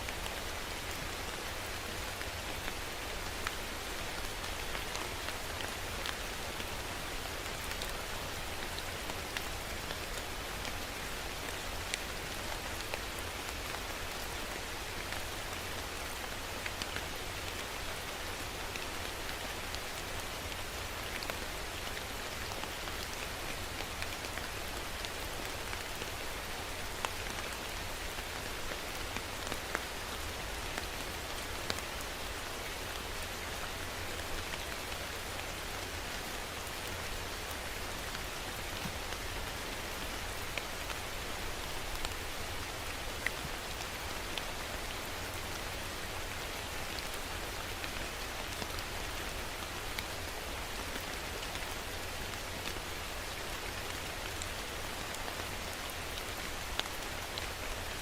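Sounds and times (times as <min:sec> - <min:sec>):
raindrops hitting a surface: 0:00.0 - 0:58.0
steady rain hiss: 0:00.0 - 0:58.0.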